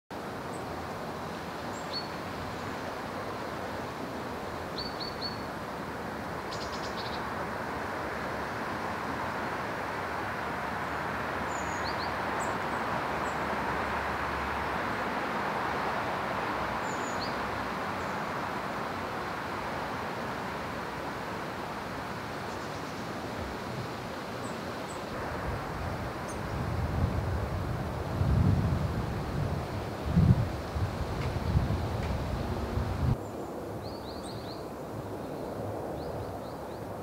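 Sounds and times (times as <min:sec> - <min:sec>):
small birds chirping: 0:01.7 - 0:02.9, 0:04.8 - 0:05.5, 0:06.4 - 0:07.3, 0:11.5 - 0:13.5, 0:16.8 - 0:18.4, 0:22.4 - 0:23.2
steady rushing noise: 0:07.1 - 0:37.0.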